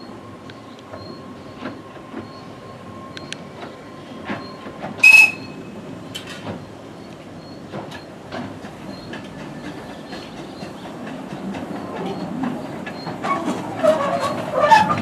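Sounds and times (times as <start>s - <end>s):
train rumble: 0.0s - 15.0s
wheels clicking over rail joints: 3.1s - 15.0s
short shrill note: 5.0s - 5.5s.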